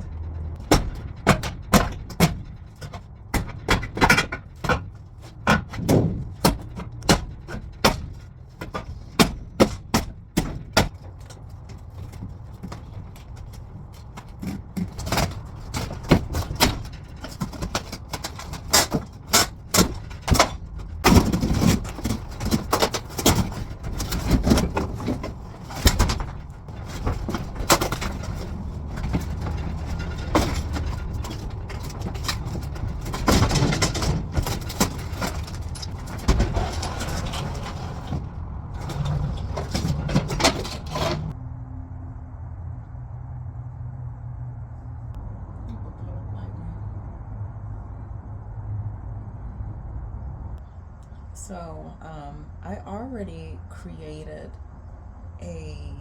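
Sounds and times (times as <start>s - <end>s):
knocks bangs and clattering: 0.0s - 41.4s
steady low hum: 0.0s - 56.0s.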